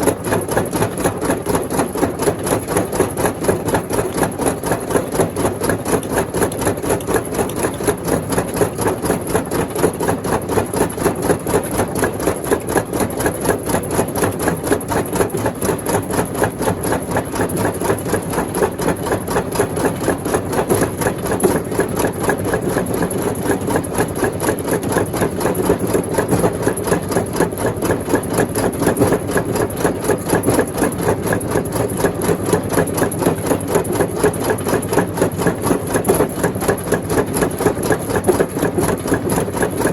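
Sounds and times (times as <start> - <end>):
rock crusher clattering: 15.2 - 39.9.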